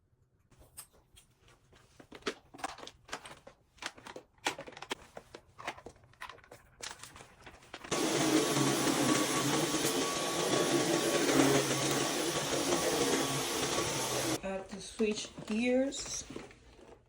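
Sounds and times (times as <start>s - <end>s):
rustles and clicks of handling: 0.5s - 7.9s, 14.7s - 17.0s
vacuum cleaner running: 7.9s - 14.4s.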